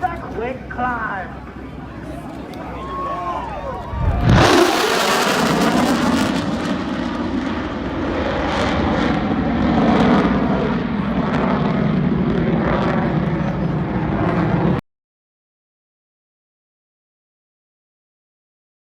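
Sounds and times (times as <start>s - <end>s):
jet engine roaring and crackling: 0.0s - 14.8s.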